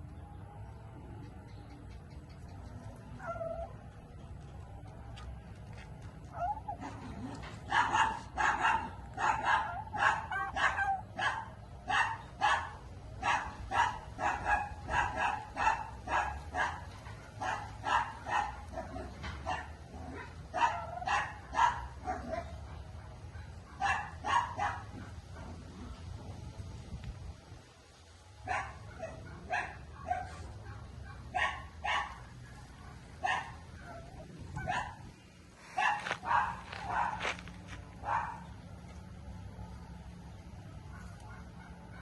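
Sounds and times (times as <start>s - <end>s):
dog barking: 6.4s - 25.6s, 28.5s - 35.1s, 35.8s - 37.4s, 38.0s - 38.6s, 40.8s - 42.0s.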